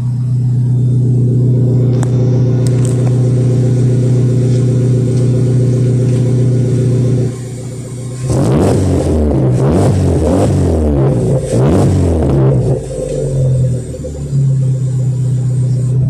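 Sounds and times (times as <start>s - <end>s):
car exhaust deep drone: 0.0s - 16.0s.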